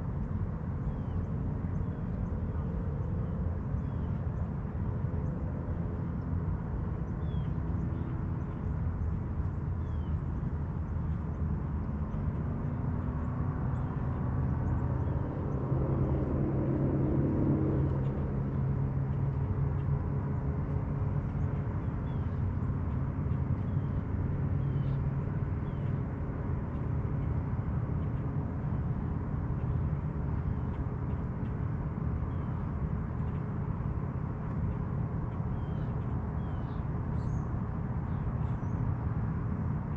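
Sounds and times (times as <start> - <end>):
motorboat engine droning: 0.1 - 39.9
faint bird chirps: 35.5 - 37.5.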